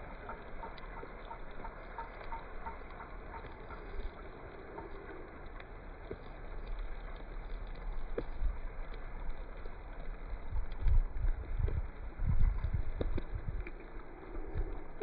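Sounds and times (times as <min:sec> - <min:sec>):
light ticks: 0:00.0 - 0:15.0
wind buffeting microphone: 0:10.4 - 0:15.0.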